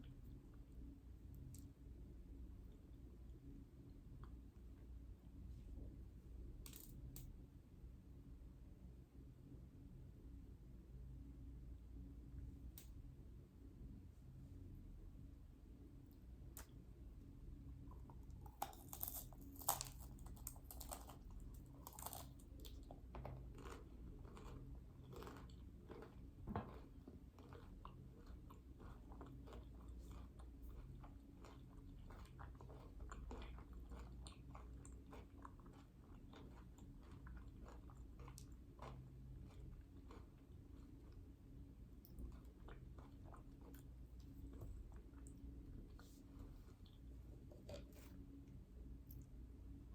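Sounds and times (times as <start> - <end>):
crunchy chewing and biting: 17.9 - 41.2.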